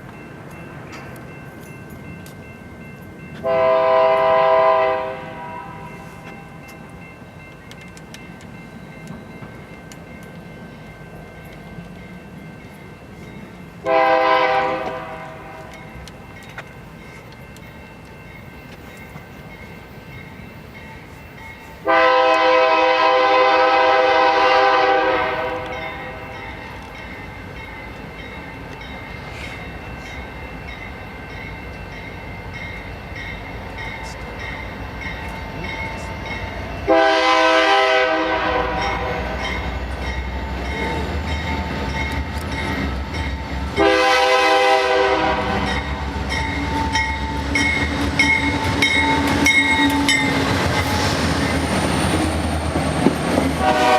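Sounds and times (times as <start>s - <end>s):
train rumbling: 0.0s - 53.9s
locomotive air horn blasts: 3.4s - 6.0s, 13.8s - 15.6s, 21.8s - 26.2s, 36.9s - 39.4s, 43.8s - 45.9s, 53.6s - 53.9s.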